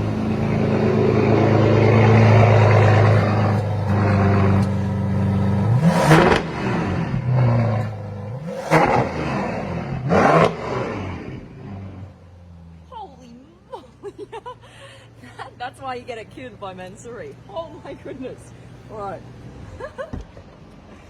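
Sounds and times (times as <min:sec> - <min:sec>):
car engine revving: 0:00.0 - 0:12.8.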